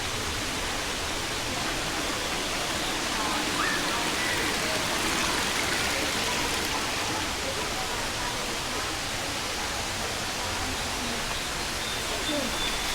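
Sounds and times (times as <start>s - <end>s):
waterfall roaring: 0.0s - 7.9s
faint distant voices: 0.0s - 12.9s.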